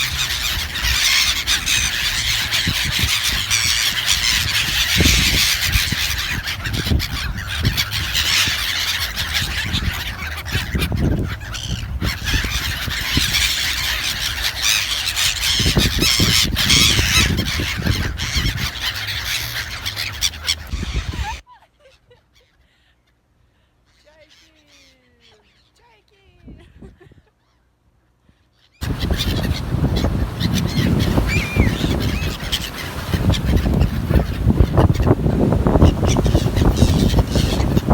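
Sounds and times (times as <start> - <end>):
wind buffeting microphone: 0.0 - 14.4, 15.1 - 21.4, 28.8 - 37.9
many birds calling: 0.0 - 25.8, 28.4 - 37.9.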